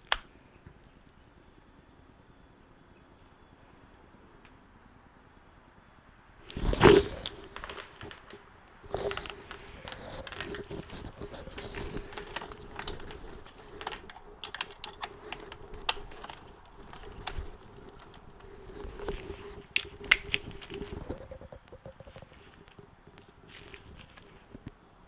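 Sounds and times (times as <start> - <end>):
faint steady hum: 0.0 - 25.0
metal tool clicks: 11.8 - 20.9
ratchet wrench clicking: 19.8 - 20.5.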